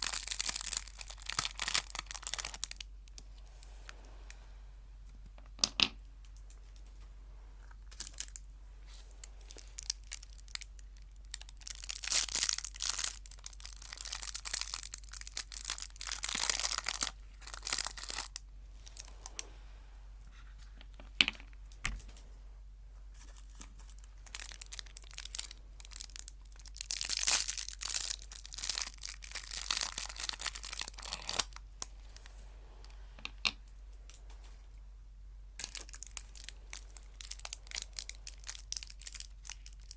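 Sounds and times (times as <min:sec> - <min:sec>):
sweet wrapper crinkling: 0:00.0 - 0:04.3, 0:07.6 - 0:19.5, 0:23.2 - 0:32.4, 0:35.6 - 0:39.9.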